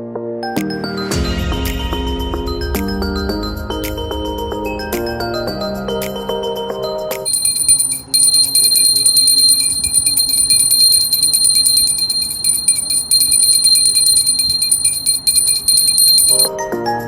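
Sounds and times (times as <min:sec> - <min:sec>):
electronic bell-like ringing: 0:04.7 - 0:16.5.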